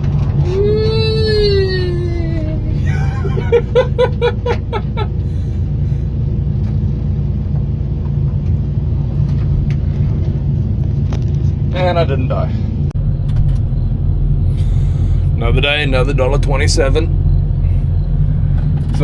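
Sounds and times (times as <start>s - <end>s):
excavator engine running: 0.0s - 19.0s
short pitched vocal cries: 0.4s - 3.4s.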